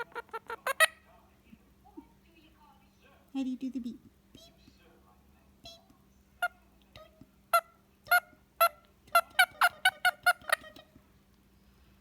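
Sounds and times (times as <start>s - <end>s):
parrot squawking: 0.0s - 1.0s, 7.5s - 10.9s.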